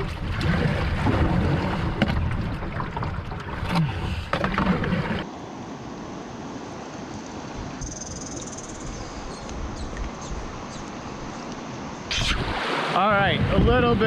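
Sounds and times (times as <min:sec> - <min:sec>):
river water splashing and rushing: 0:00.0 - 0:07.8, 0:09.6 - 0:14.0.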